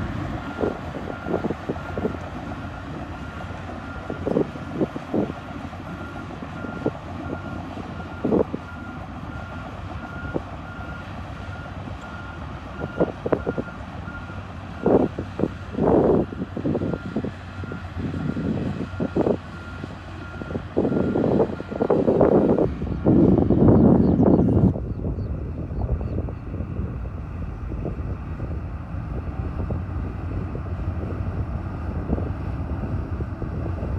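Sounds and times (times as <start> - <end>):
bulldozer engine running: 0.0 - 33.9
reversing alarm beeping: 0.4 - 5.3, 16.1 - 23.2.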